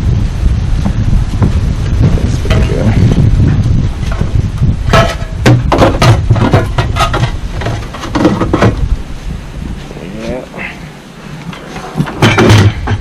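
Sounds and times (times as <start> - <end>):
wind buffeting microphone: 0.0 - 13.0
knocks and clatters of handling: 4.9 - 8.9, 11.4 - 13.0.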